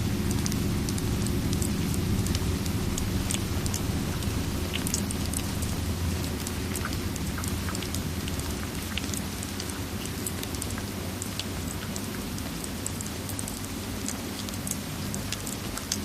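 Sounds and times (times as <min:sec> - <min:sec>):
wood fire crackling and popping: 0:00.0 - 0:14.5
steady rain: 0:00.0 - 0:16.0.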